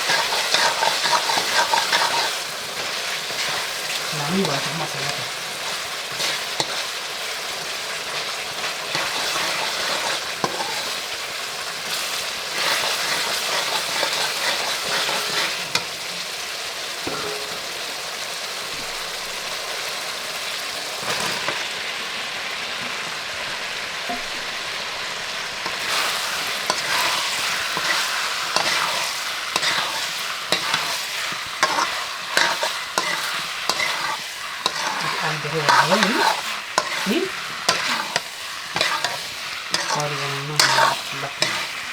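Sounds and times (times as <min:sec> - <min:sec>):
utensil scraping a pan: 0:00.0 - 0:06.9, 0:08.7 - 0:11.2, 0:11.9 - 0:16.2, 0:25.6 - 0:41.9
curry sizzling in a pan: 0:00.0 - 0:41.9.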